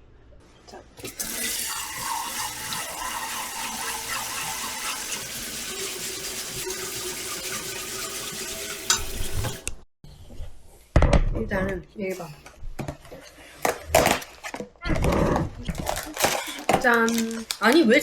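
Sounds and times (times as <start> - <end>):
water running from tap: 1.0 - 9.7.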